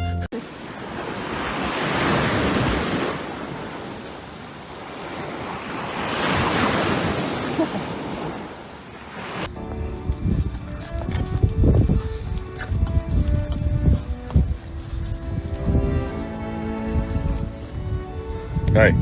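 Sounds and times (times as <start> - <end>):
surf washing in: 0.4 - 9.6.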